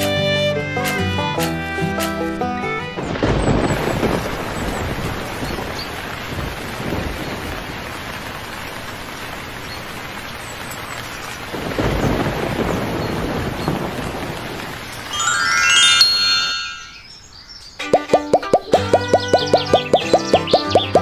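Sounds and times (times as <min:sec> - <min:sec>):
heavy rain: 0:00.0 - 0:16.4
rolling thunder: 0:03.1 - 0:08.0, 0:11.5 - 0:15.1.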